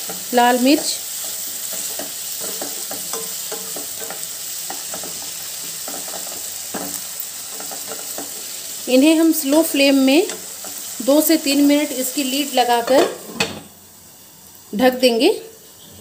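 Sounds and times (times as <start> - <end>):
spatula scraping and tapping: 0.0 - 8.4
vegetables sizzling in oil: 0.0 - 16.0.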